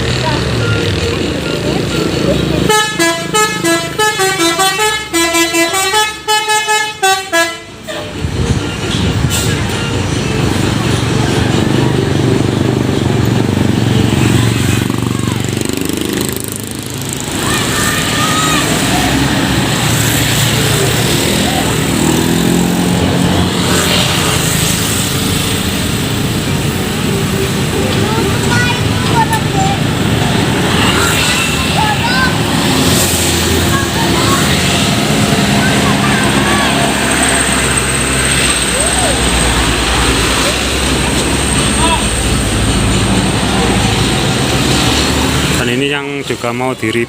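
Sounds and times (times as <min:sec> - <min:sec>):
bus diesel engine running: 0:00.0 - 0:47.0
musical bus horn melody: 0:00.6 - 0:11.2.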